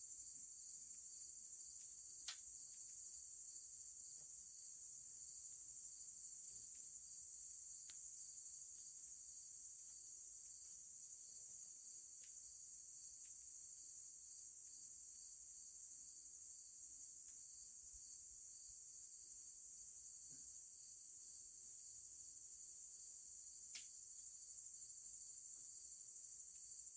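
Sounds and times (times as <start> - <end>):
crickets chirping: 0.0 - 26.9
faint click: 2.2 - 2.5, 7.8 - 8.0, 23.7 - 24.0.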